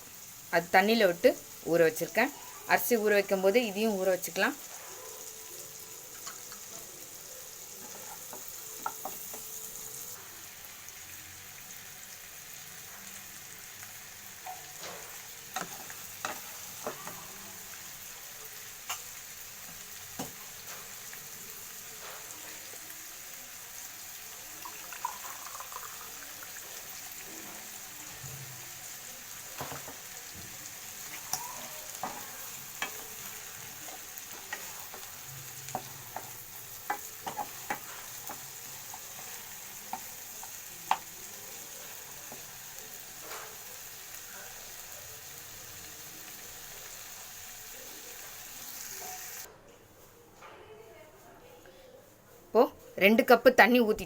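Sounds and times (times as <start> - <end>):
onions sizzling in butter: 0.0 - 49.5
spoon tapping and scraping pan: 7.8 - 9.6, 14.4 - 17.3, 18.8 - 20.9, 29.6 - 41.2.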